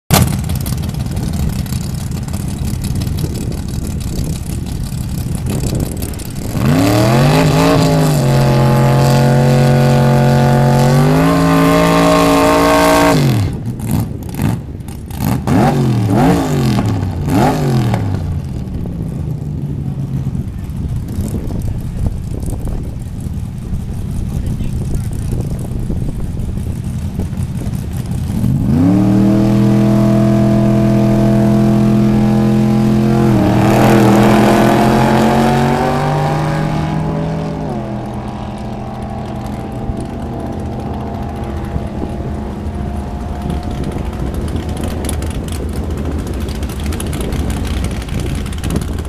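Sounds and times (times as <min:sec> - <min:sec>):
engine idle rumble: 0:00.1 - 0:06.7, 0:18.0 - 0:28.7, 0:37.0 - 0:49.0
drag car engine revving: 0:00.1 - 0:49.0.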